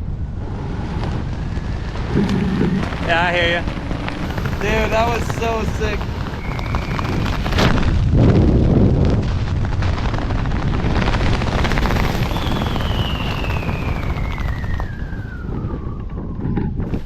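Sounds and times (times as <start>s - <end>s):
wind rushing over microphone: 0.0s - 17.0s
thin whistling tone falling in pitch: 12.2s - 16.5s.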